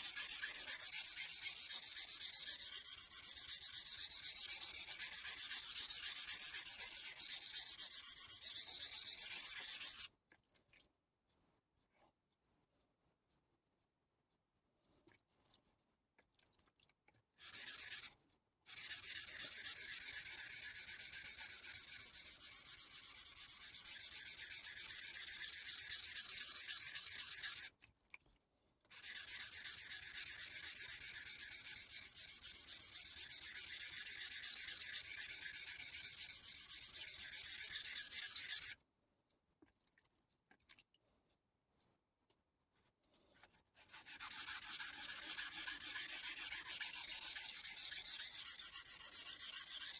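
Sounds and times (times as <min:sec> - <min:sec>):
knife scraping on whetstone: 0:00.0 - 0:10.1, 0:23.4 - 0:27.7, 0:29.0 - 0:38.8, 0:43.8 - 0:49.9.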